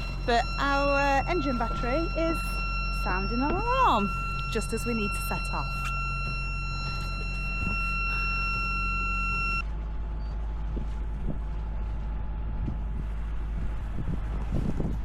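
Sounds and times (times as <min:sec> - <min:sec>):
high-pitched alarm tone: 0:00.0 - 0:09.6
boat engine humming: 0:00.0 - 0:15.0.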